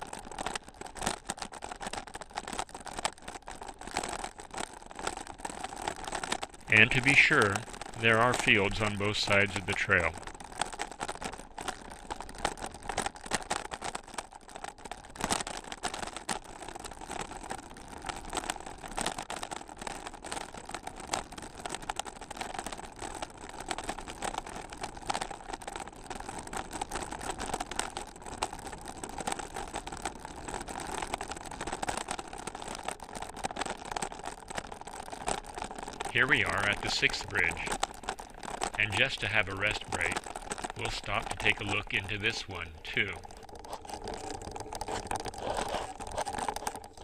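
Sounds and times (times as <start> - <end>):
bike rattling and clicking: 0.0 - 6.8, 10.1 - 36.1, 40.2 - 40.8, 43.3 - 47.0
bicycle tyres rolling on trail: 0.0 - 47.0.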